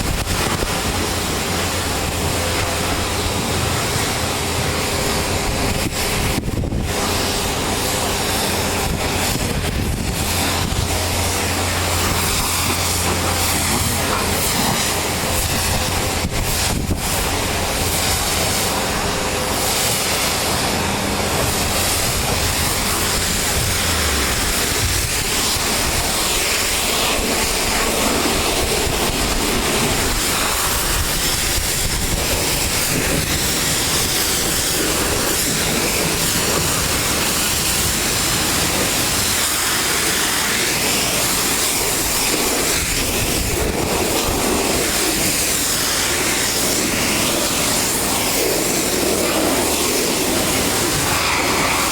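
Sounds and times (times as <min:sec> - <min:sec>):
pressure washer machine running: 0:00.0 - 0:51.9
pressure washer water spray: 0:00.0 - 0:51.9.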